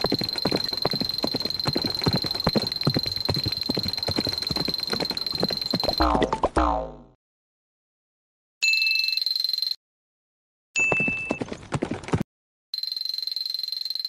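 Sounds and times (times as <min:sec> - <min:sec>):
galloping hoof clip-clop: 0:00.0 - 0:06.4, 0:10.8 - 0:12.2.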